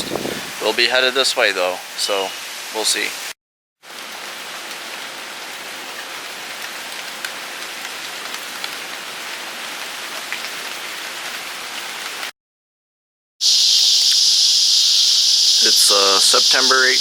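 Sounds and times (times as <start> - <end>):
steady rain falling: 0.4 - 12.3, 14.0 - 17.0
loud high-pitched hiss: 13.4 - 17.0.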